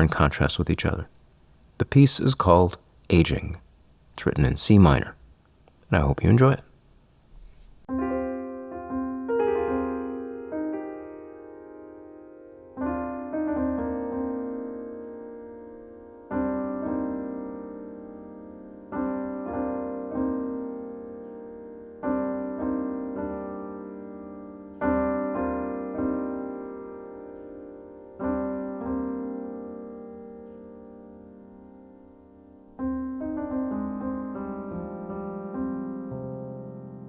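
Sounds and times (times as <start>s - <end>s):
slow solo piano: 7.8s - 37.0s.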